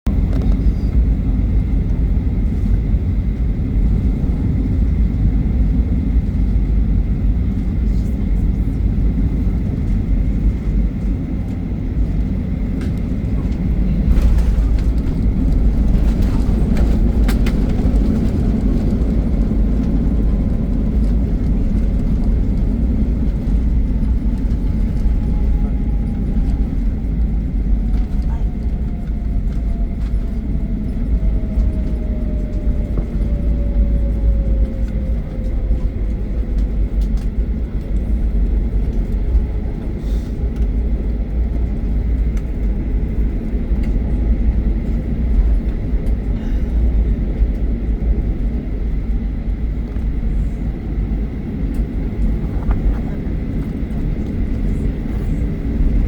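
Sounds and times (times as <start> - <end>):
airplane engines rumbling: 0.0 - 56.0
engine whine falling in pitch: 11.8 - 39.8.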